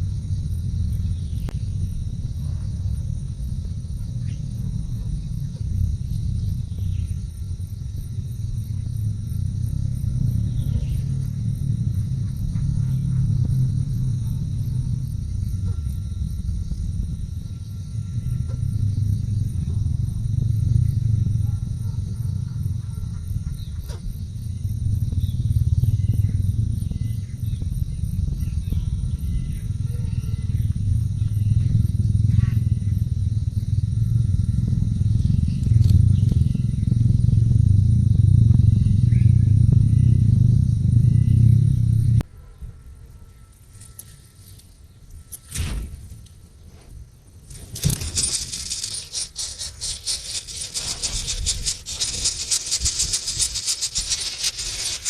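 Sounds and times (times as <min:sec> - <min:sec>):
loud low rumble: 0:00.0 - 0:42.2
insects chirping: 0:00.0 - 0:55.0.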